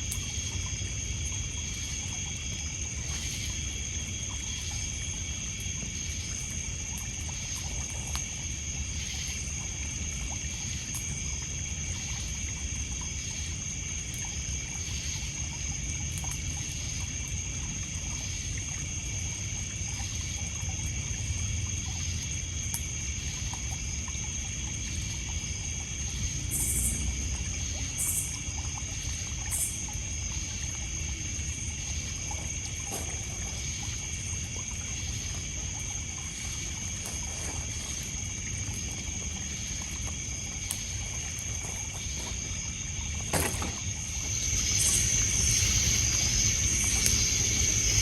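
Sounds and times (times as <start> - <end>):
crickets and insects trilling: 0.0 - 48.0
water lapping on pebbles: 21.8 - 48.0
burning wood crackles: 31.2 - 48.0.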